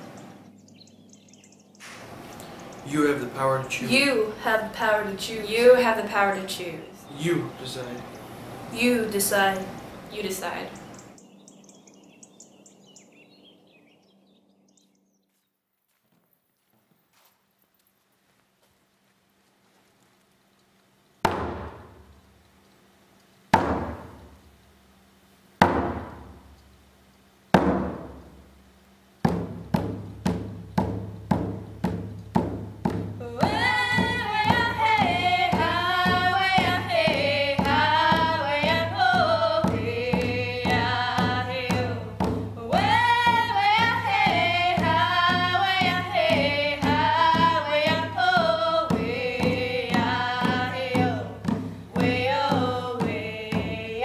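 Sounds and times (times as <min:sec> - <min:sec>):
women singing: 0:03.9 - 0:06.8, 0:33.2 - 0:54.0
frame drum beats: 0:21.2 - 0:22.2, 0:23.6 - 0:24.4, 0:25.6 - 0:26.6, 0:27.5 - 0:54.0.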